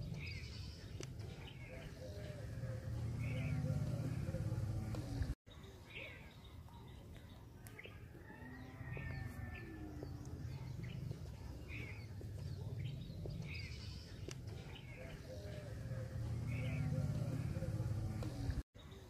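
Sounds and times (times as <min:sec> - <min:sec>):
birds chirping: 0:00.0 - 0:19.0
faint sharp clicks: 0:14.2 - 0:14.4.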